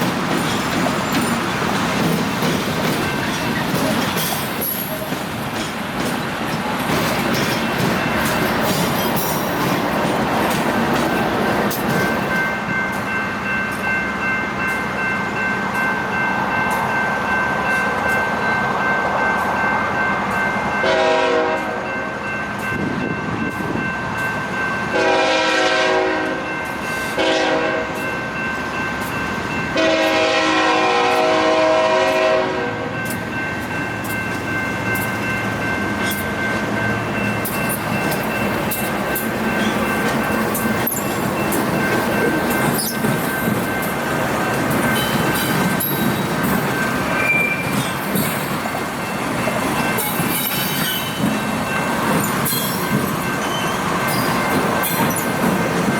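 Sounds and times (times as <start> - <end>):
diesel locomotive engine whine: 0.0 - 55.9
locomotive air horn blasts: 20.8 - 21.8, 25.0 - 26.5, 27.2 - 28.0, 29.8 - 33.0.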